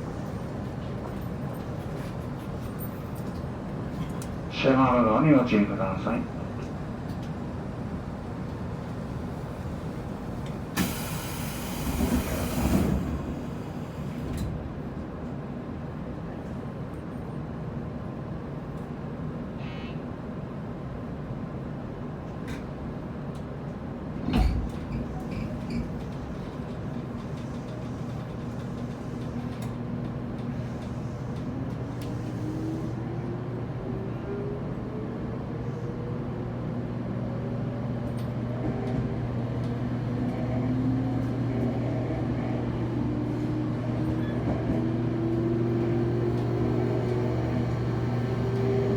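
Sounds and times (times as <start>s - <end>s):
train interior low hum: 0.0s - 48.9s
train motor tone: 6.0s - 14.5s.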